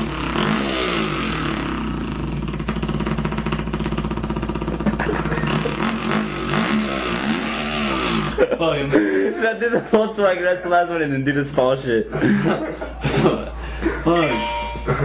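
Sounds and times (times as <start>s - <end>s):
man imitating motorbike engine: 0.0s - 8.6s.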